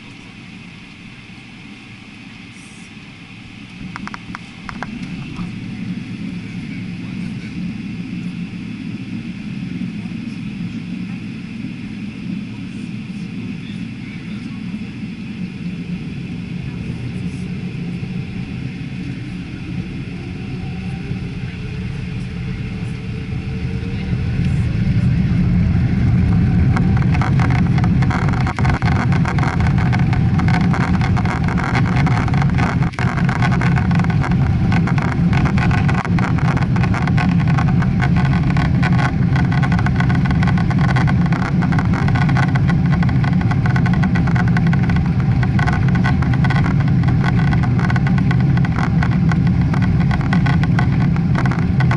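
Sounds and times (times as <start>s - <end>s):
jet engines spooling up: 0.0s - 51.9s
small knocks: 26.7s - 51.9s.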